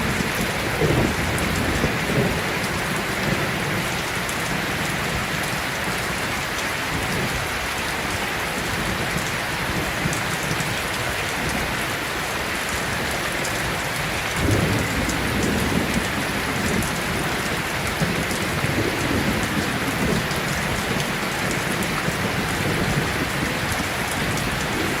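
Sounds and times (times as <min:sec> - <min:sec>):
thunder rumbling: 0:00.0 - 0:05.3, 0:13.5 - 0:25.0
heavy rain on hard surfaces: 0:00.0 - 0:25.0.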